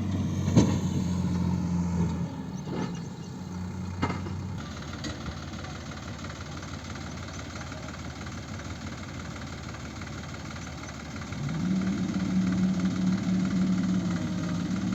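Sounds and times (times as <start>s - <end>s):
diesel engine revving: 0.0s - 5.2s, 10.9s - 14.9s.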